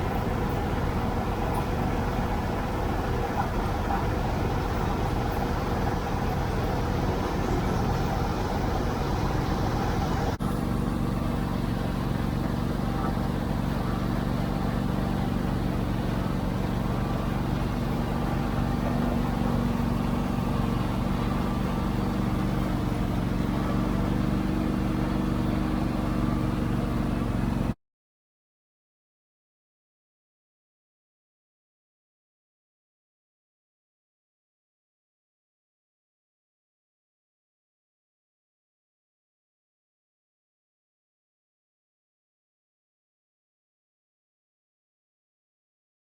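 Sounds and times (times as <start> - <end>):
tractor engine droning: 0.0 - 27.8.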